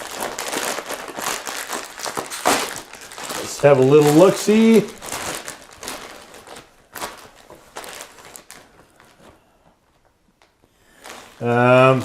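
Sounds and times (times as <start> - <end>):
snack bag crinkling: 0.0 - 9.4, 10.4 - 12.0.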